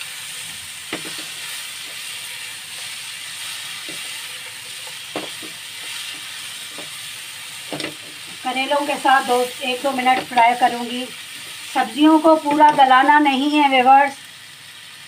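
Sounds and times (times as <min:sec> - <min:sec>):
vegetables sizzling in oil: 0:00.0 - 0:15.0
spatula knocking pan: 0:00.9 - 0:02.1, 0:03.8 - 0:07.0, 0:07.6 - 0:08.4, 0:09.8 - 0:10.8.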